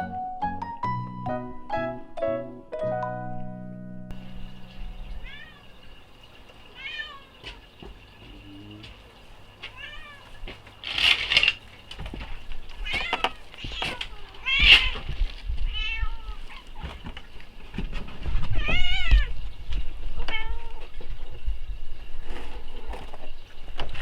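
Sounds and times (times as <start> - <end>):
cat meowing: 5.2 - 5.7, 6.8 - 7.6, 9.7 - 10.3, 12.8 - 15.1, 15.7 - 16.7, 18.6 - 19.4, 20.2 - 20.9.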